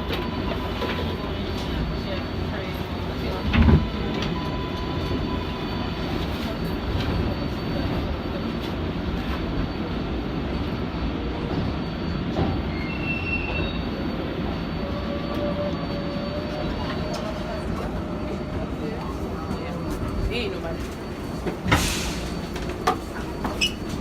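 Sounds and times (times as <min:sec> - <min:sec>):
subway train rumbling on track: 0:00.0 - 0:24.0
faint wheel squeals: 0:11.4 - 0:22.4, 0:23.3 - 0:24.0.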